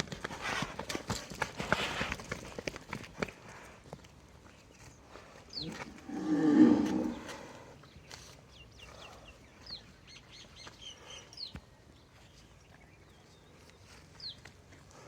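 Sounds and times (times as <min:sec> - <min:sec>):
small birds chirping: 0:04.3 - 0:15.0
cow mooing: 0:05.7 - 0:07.5.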